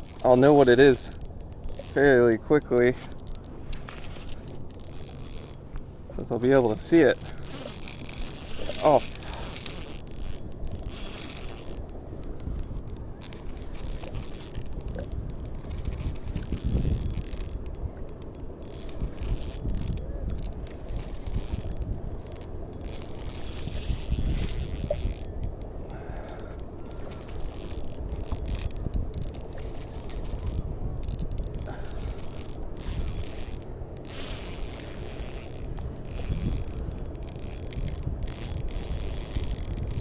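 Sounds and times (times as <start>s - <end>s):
fishing reel ratcheting: 0.0s - 40.0s
low wind: 0.0s - 40.0s
water noise: 0.0s - 40.0s.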